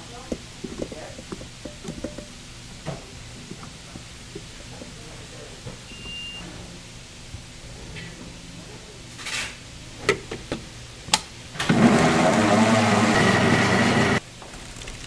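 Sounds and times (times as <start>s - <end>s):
motor machine running loudly: 11.6s - 14.2s.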